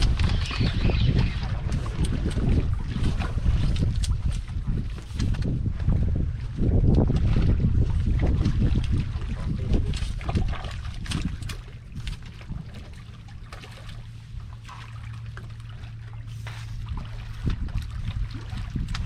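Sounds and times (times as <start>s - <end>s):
low steady hum: 0.0s - 19.0s
seawater sloshing among rocks: 0.0s - 19.0s
wind rumbling on microphone: 0.0s - 19.0s.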